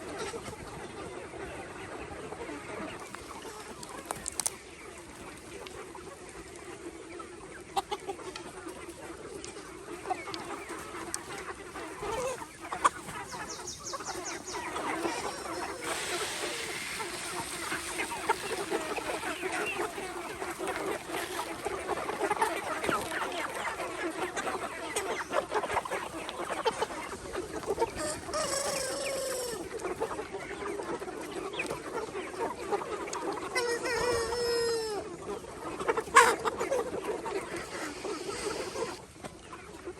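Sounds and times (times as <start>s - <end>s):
chickens clucking: 0.0s - 39.9s
loud high chicken calls: 9.9s - 39.1s.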